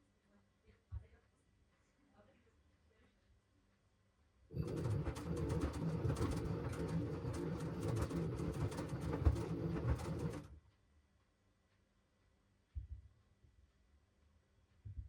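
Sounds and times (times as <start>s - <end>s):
washing machine drum turning: 4.5s - 10.5s.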